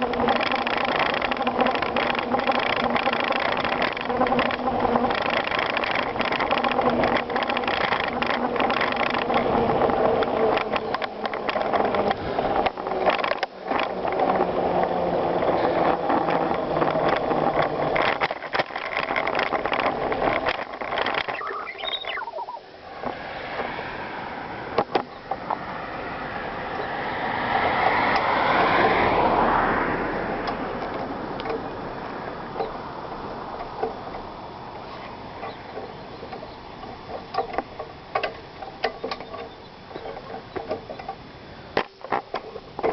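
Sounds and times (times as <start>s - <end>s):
drivetrain ratchet clicking: 0.0s - 14.4s
bicycle parts rattling: 0.0s - 23.1s
bicycle tyres crunching on gravel: 0.0s - 33.0s.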